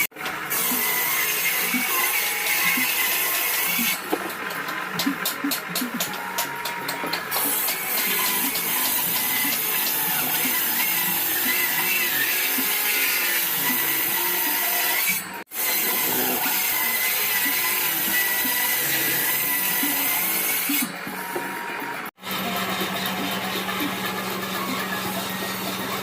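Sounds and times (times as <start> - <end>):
power tool cutting wood: 0.0 - 26.0.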